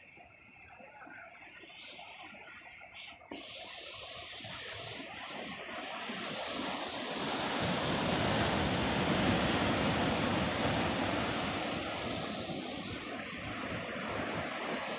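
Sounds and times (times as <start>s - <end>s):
ocean wave breaking on beach: 4.4s - 14.9s.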